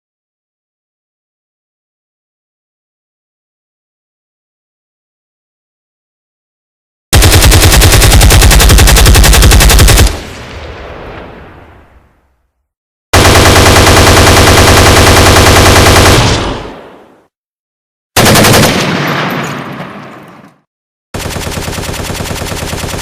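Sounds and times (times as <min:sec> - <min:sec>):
automatic machine-gun fire: 0:07.1 - 0:10.5, 0:13.2 - 0:16.9, 0:18.2 - 0:19.4, 0:21.2 - 0:23.0.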